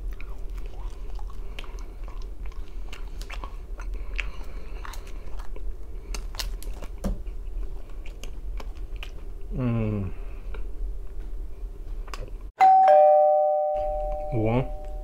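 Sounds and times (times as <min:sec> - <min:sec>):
person chewing crisp crust: 0:00.0 - 0:10.7.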